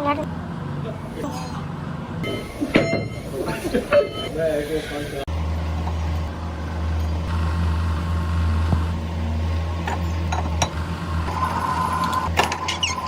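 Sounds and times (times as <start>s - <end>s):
machine low hum: 0.2s - 13.0s
steady higher tone: 2.2s - 12.2s.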